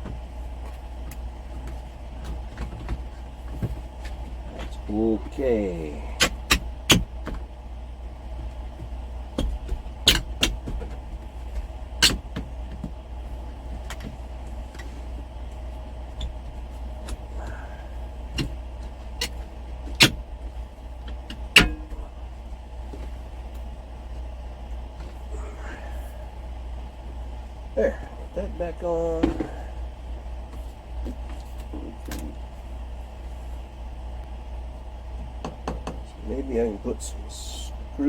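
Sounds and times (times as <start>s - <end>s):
steady low hum: 0.0s - 38.0s
tools clicking and knocking: 9.4s - 10.8s, 21.3s - 22.0s.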